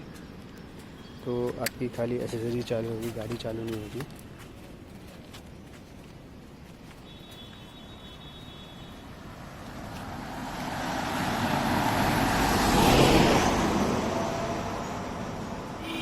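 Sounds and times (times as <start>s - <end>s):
road vehicle passing by: 9.0s - 15.8s.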